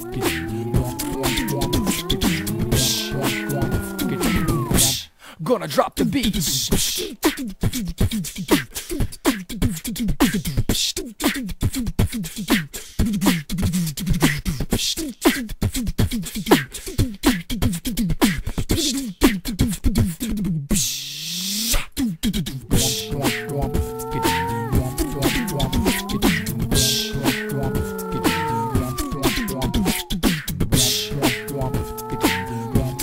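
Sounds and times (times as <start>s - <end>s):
sung held notes: 0.0s - 4.9s, 22.7s - 30.2s, 30.8s - 33.0s
person beatboxing: 0.0s - 33.0s.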